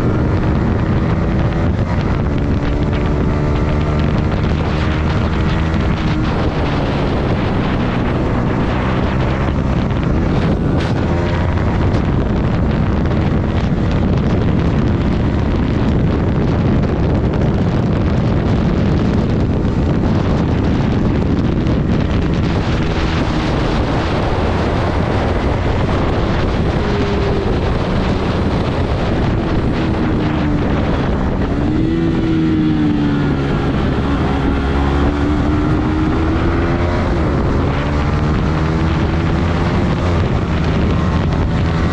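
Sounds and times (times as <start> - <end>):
motorcycle engine running: 0.0 - 41.9
wind noise on microphone: 0.0 - 41.9.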